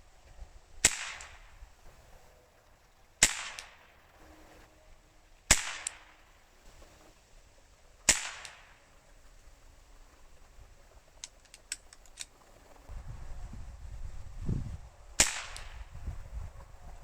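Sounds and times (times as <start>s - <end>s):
air rifle crack: 0.8s - 1.9s, 3.2s - 4.0s, 5.5s - 6.4s, 8.0s - 9.0s, 15.2s - 16.0s.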